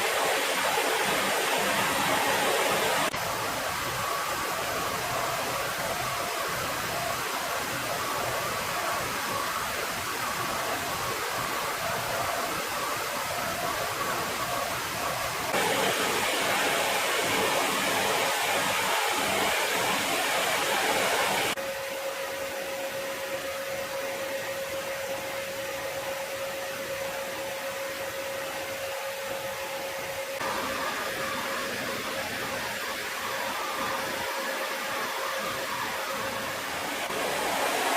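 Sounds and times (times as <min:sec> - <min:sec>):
jet engines rushing: 0:00.0 - 0:03.7, 0:15.5 - 0:21.6, 0:30.4 - 0:37.9.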